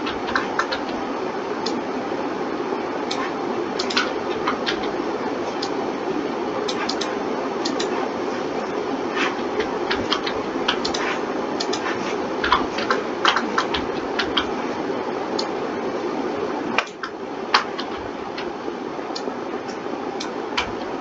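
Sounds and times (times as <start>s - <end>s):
keyboard and mouse clicks: 0.0s - 1.0s, 3.1s - 5.8s, 6.6s - 14.6s, 16.8s - 18.5s, 19.1s - 20.9s
background hiss: 0.0s - 21.0s.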